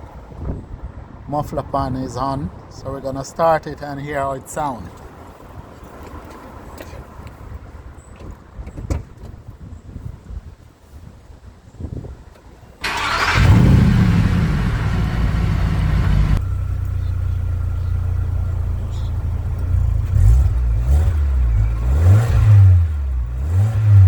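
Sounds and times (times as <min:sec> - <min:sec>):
car engine revving: 0:12.8 - 0:16.4, 0:17.0 - 0:24.0
car engine idling: 0:12.8 - 0:21.7
car engine starting: 0:12.8 - 0:24.0.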